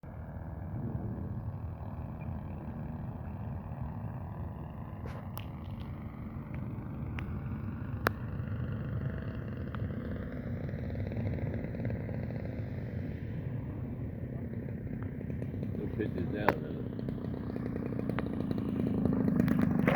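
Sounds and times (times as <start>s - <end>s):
aircraft radial engine running: 0.0s - 19.9s.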